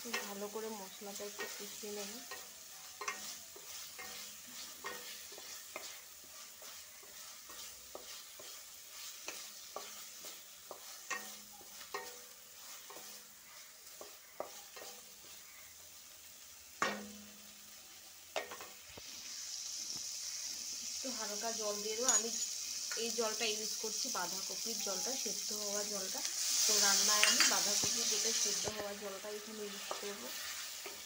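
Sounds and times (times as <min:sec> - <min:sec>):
spatula scraping and tapping pan: 0:00.0 - 0:15.8, 0:16.7 - 0:17.5, 0:18.3 - 0:19.2, 0:22.0 - 0:31.0
spice paste sizzling in oil: 0:00.0 - 0:31.0.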